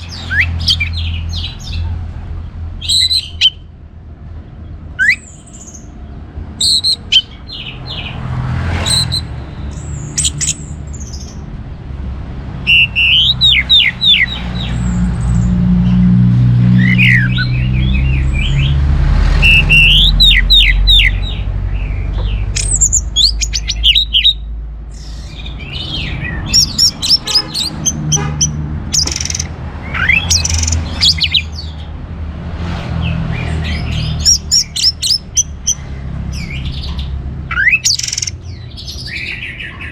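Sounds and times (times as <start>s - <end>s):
thrush singing: 4.9s - 32.0s.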